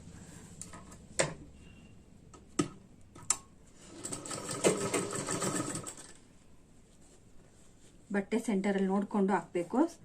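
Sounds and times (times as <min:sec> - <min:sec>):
sewing machine running: 0:03.9 - 0:06.2.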